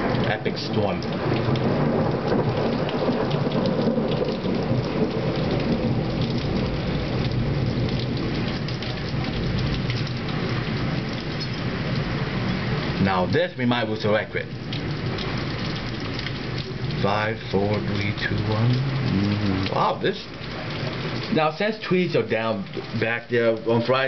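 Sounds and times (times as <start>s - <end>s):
low rumble of thunder: 0.0s - 13.4s
heavy rain pouring: 0.0s - 24.0s.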